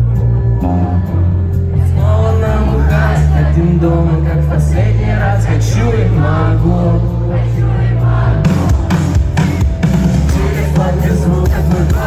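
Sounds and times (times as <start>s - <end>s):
heavy sustained bass: 0.0s - 12.0s
sung vocals: 0.0s - 12.0s
live rock band playing: 6.1s - 12.0s.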